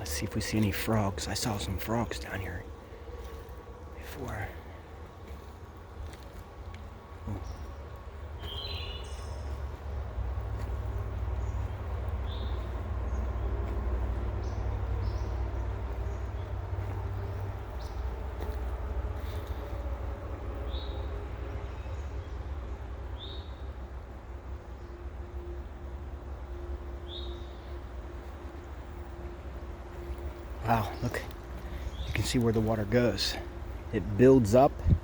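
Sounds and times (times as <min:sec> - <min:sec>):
wind rumbling on microphone: 0:34.7 - 0:35.0.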